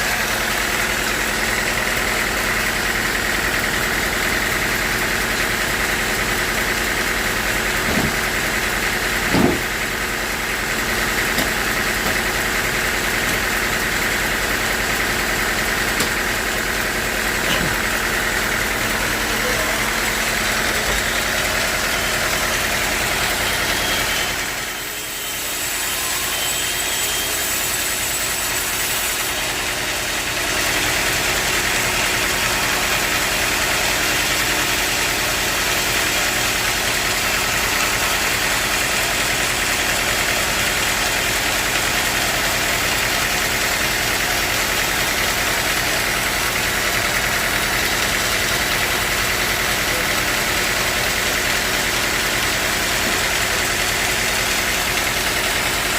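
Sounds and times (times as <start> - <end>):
sawmill machinery drone: 0.0 - 55.9.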